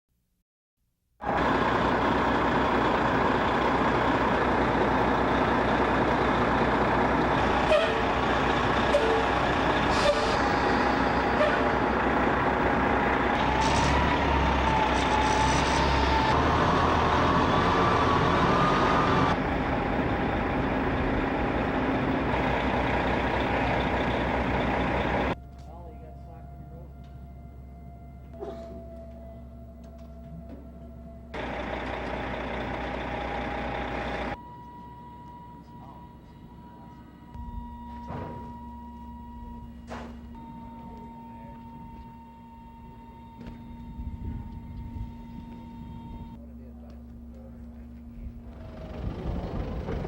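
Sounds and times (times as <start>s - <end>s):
heavy machinery noise: 1.2s - 34.4s, 39.4s - 50.0s.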